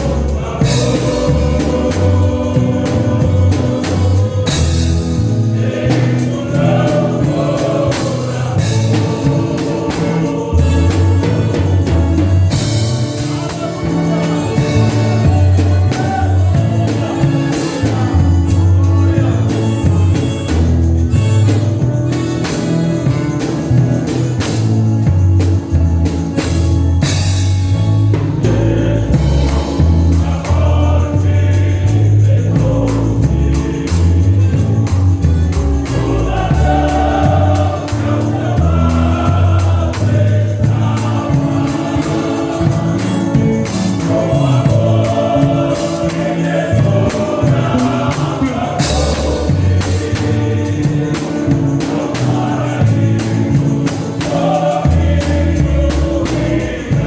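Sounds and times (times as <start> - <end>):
gospel band with bass and drums: 0.0 - 57.0
group of voices singing: 0.0 - 57.0.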